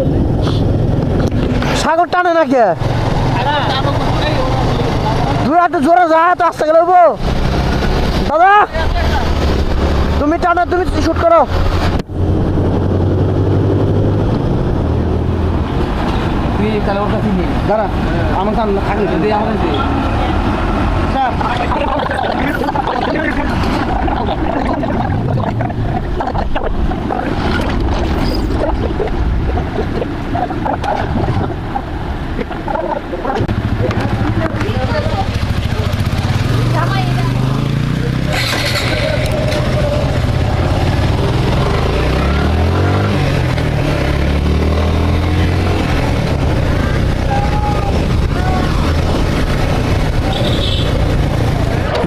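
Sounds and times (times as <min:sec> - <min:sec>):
wind noise on microphone: 0:11.5 - 0:16.5, 0:20.5 - 0:34.8
ferry engine rumble: 0:11.6 - 0:42.2
faint voices: 0:19.8 - 0:27.4
motorcycle engine running: 0:33.4 - 0:42.1.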